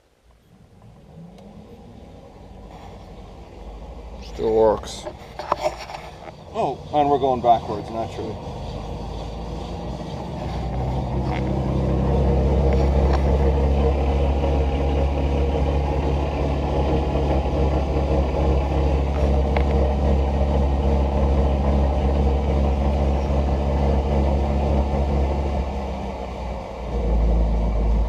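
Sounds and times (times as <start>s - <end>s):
electric motor low drone: 6.4s - 28.0s.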